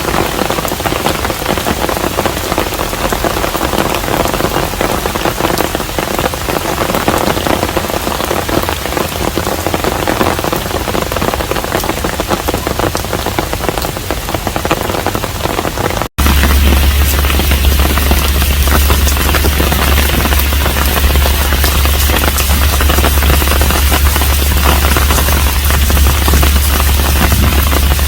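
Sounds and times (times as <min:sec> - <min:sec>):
steady rain falling: 0:00.0 - 0:28.0
close water drops: 0:16.2 - 0:28.0.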